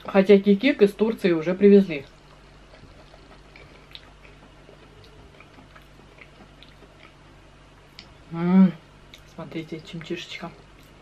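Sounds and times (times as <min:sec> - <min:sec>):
steady low hum: 0:00.0 - 0:11.0
wet mouth clicks chewing: 0:02.0 - 0:07.2.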